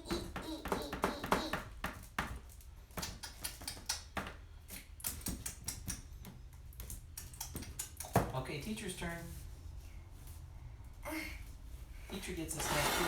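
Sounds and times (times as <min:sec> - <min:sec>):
plastic toys clicking and tapping: 0:00.0 - 0:04.4.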